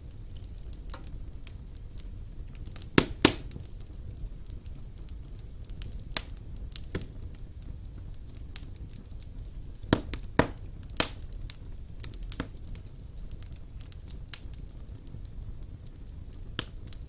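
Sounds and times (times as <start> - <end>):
wood fire crackling: 0.0 - 17.0
logs popping: 0.2 - 3.9, 8.6 - 12.8.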